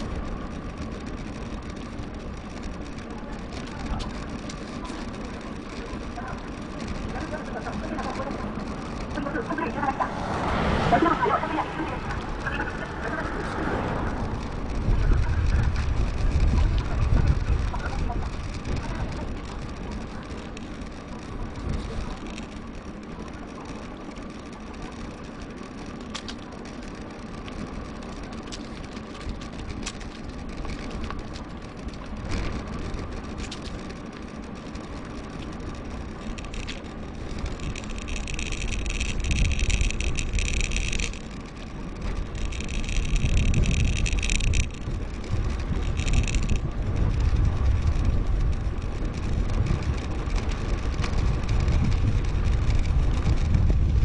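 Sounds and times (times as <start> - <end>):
bike tyre hum: 0.0 - 54.0
rapid freehub clicking: 0.0 - 54.0
wind on microphone: 6.4 - 22.3, 35.8 - 54.0.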